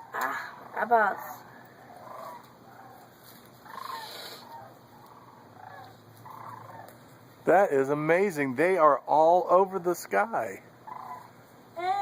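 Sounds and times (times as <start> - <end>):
flock of birds calling: 0.0 - 8.0, 10.8 - 11.5.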